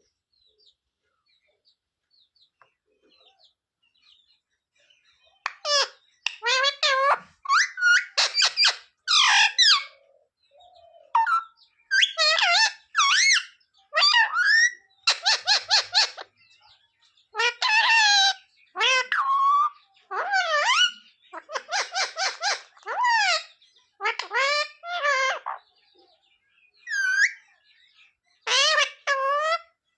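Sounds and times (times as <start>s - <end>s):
parrot whistling and screeching: 5.5s - 9.9s, 11.2s - 16.3s, 17.4s - 25.6s, 26.8s - 27.4s, 28.4s - 29.7s.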